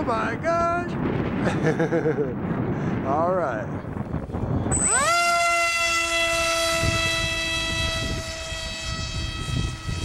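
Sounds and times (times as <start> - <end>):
wind buffeting microphone: 0.0 - 10.0
electric motor high whine: 4.6 - 10.0.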